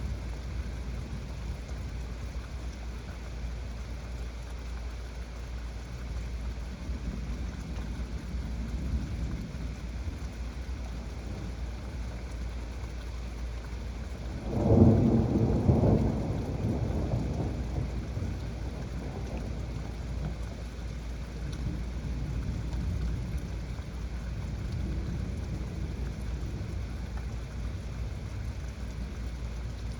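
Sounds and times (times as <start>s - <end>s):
heavy rain falling: 0.0s - 29.9s
thunder clap rumbling: 14.2s - 20.6s.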